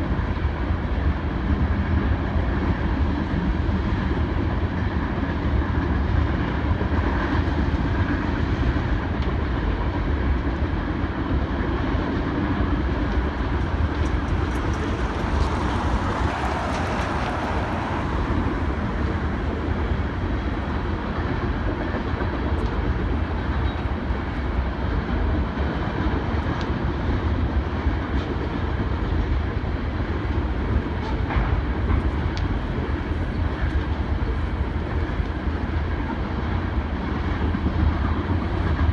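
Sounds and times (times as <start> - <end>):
train wheels rumbling on rail: 0.0 - 38.9
wheels clicking over rail joints: 11.7 - 38.9.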